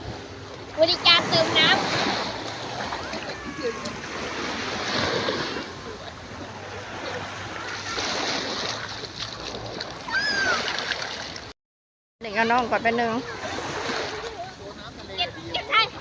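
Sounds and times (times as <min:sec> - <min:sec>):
small waves splashing: 0:00.0 - 0:11.5, 0:12.3 - 0:16.0
child calling: 0:03.0 - 0:04.0, 0:10.1 - 0:10.7.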